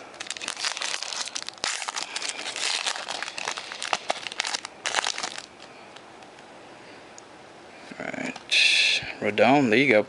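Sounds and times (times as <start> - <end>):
foil pack crinkling: 0.0 - 6.0.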